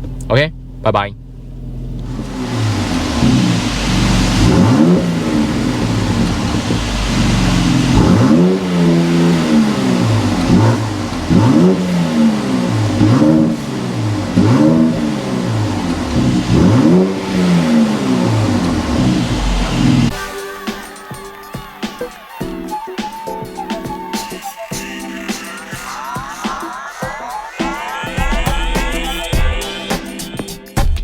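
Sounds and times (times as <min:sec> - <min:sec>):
car engine revving: 0:00.0 - 0:22.4.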